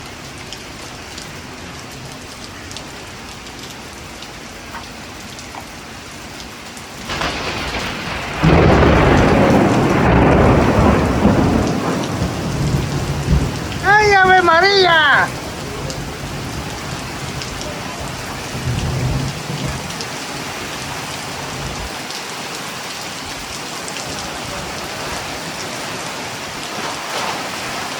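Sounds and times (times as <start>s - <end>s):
raindrops ticking: 0.0s - 20.2s
steady rain: 0.0s - 27.9s
thunder rumbling: 7.1s - 22.0s.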